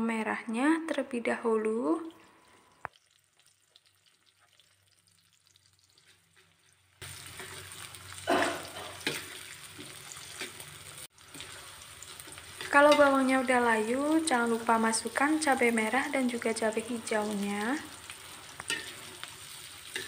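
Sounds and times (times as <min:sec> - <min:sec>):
onions sizzling in hot oil: 0:02.8 - 0:20.0
metal spatula scraping pan: 0:07.2 - 0:10.7, 0:18.6 - 0:20.0.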